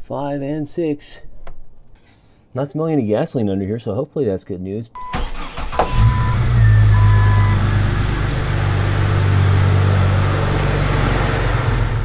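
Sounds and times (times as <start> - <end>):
car engine idling: 5.2 - 12.0.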